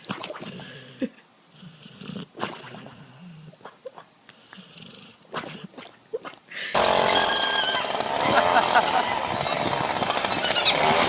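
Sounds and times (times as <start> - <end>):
pet animal breathy vocal sounds: 0.0 - 6.8.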